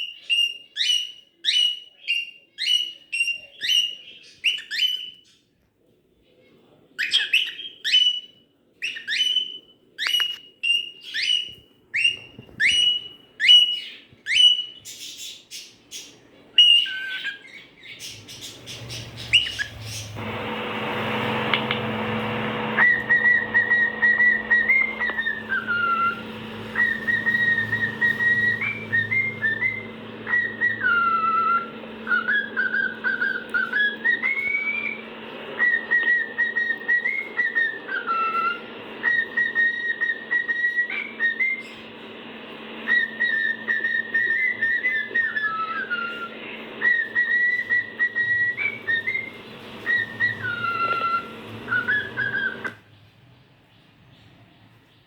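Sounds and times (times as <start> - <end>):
cockatiel whistling a tune: 0.0 - 5.4, 7.0 - 15.2, 16.6 - 42.1, 42.7 - 52.8
cockatiel chirps: 7.0 - 20.2, 22.6 - 41.9, 42.8 - 52.8
steady low hum: 18.1 - 52.8.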